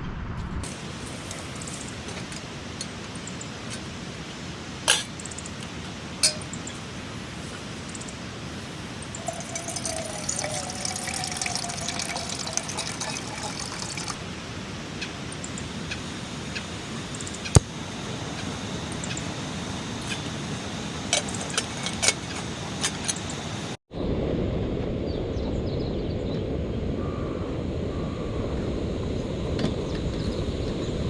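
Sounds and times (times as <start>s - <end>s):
liquid pouring into container: 9.0s - 14.2s.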